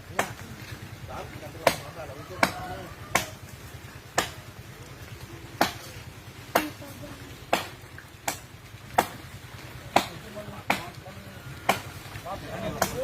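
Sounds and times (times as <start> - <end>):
blade chopping wood: 7.5 - 9.2, 9.9 - 10.9.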